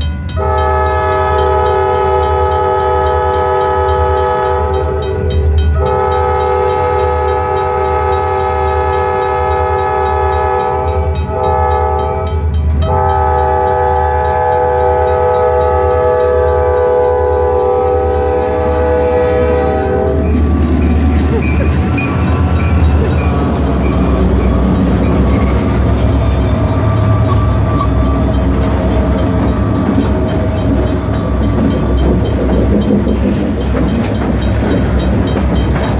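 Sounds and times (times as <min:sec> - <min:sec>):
train rumbling past: 0:00.0 - 0:35.9
locomotive air horn: 0:00.4 - 0:20.6.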